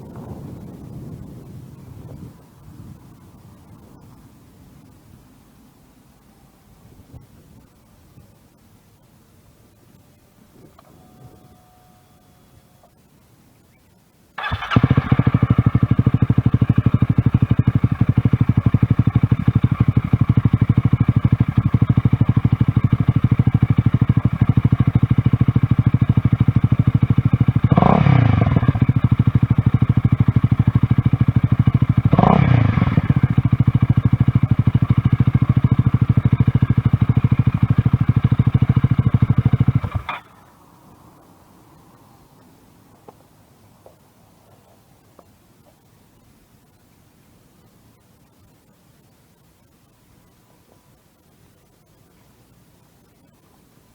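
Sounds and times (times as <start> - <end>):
motorcycle engine idling and revving: 14.4 - 40.8.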